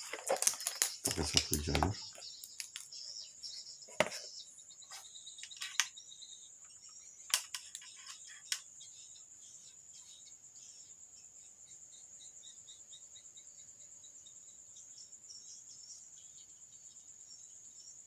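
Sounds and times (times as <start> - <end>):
clicks of handled tools: 7.3 - 8.6.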